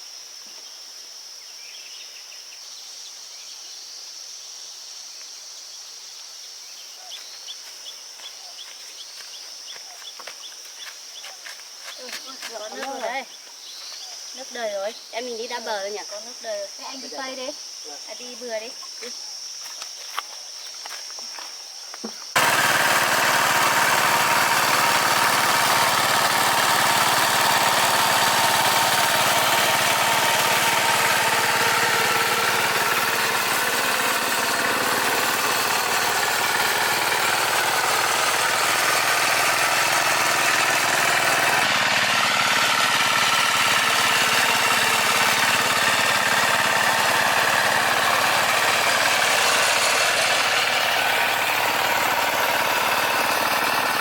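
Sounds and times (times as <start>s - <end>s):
farm machine engine running: 22.4s - 54.0s.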